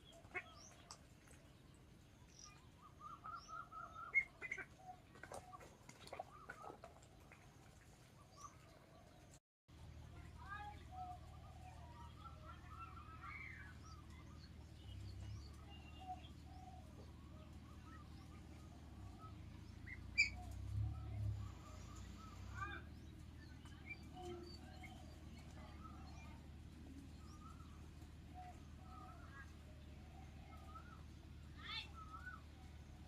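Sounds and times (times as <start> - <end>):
ducklings peeping: 0.0 - 1.4, 2.5 - 7.0, 11.1 - 20.6.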